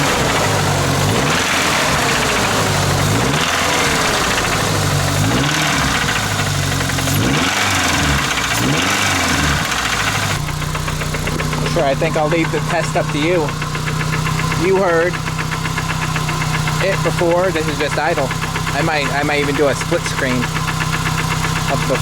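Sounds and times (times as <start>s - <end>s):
truck engine idling and revving: 0.0s - 22.0s.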